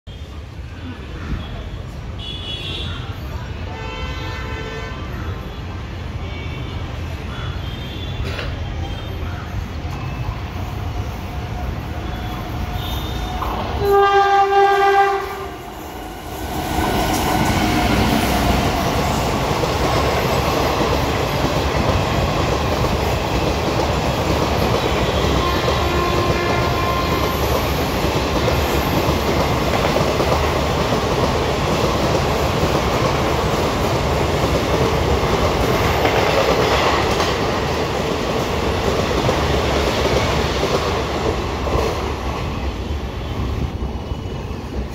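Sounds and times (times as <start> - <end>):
train horn blast: 3.7 - 5.1, 12.2 - 15.8, 24.9 - 27.4
train coaches rushing past: 6.8 - 44.9.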